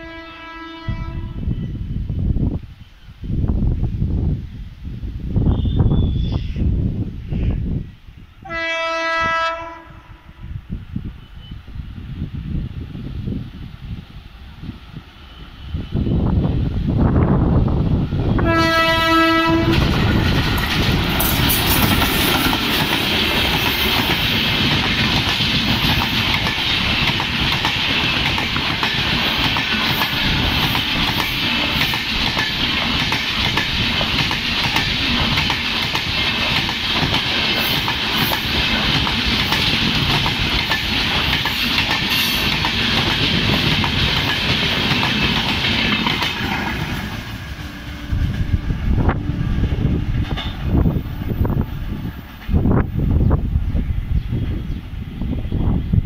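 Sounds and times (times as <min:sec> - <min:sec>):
locomotive horn blast: 0:00.0 - 0:01.5, 0:08.4 - 0:10.4, 0:18.4 - 0:19.9
train wheels on rails: 0:10.7 - 0:56.0.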